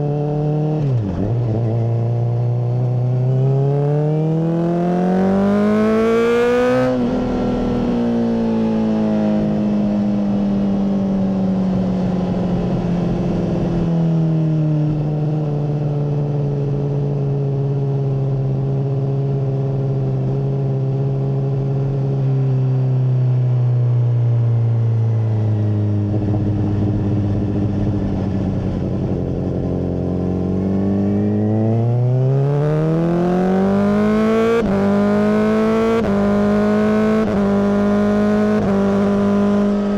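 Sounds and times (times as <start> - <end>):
motorcycle engine revving: 0.0 - 13.9, 25.4 - 39.9.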